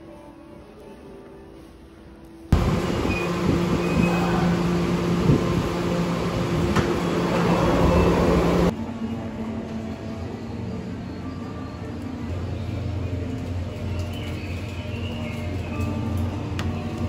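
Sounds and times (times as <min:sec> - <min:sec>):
train rumble: 0:02.5 - 0:17.0
train brakes squealing: 0:02.9 - 0:04.6.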